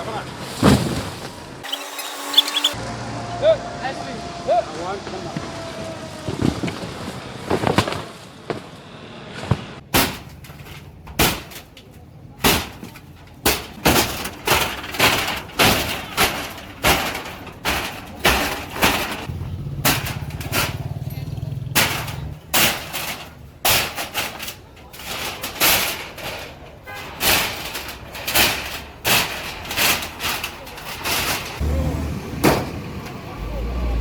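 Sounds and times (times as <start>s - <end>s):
loud strikes and breaking crashes: 9.8s - 11.7s, 12.4s - 20.9s, 21.7s - 31.6s.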